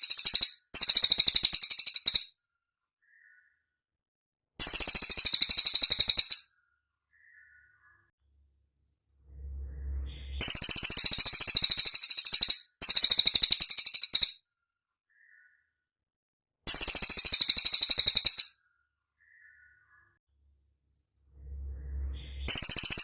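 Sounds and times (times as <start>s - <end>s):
low rumble: 8.2s - 11.0s, 20.3s - 22.8s
bird singing high trills: 9.2s - 14.4s, 21.3s - 23.0s.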